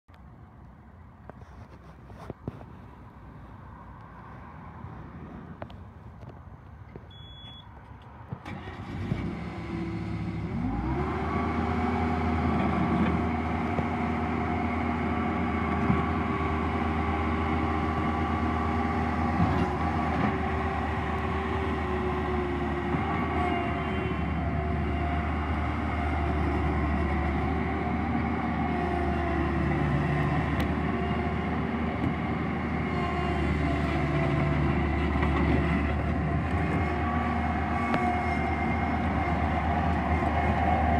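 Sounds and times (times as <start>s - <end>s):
short beep: 7.1s - 7.7s
diesel engine cranking and running: 8.3s - 14.5s.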